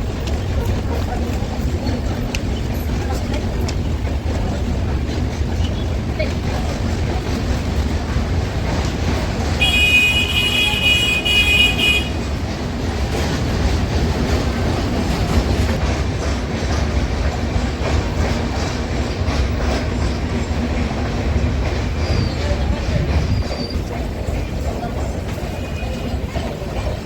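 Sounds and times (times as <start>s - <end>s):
train wheels rumbling on rails: 0.0s - 27.0s
high-pitched train horn: 9.6s - 12.4s.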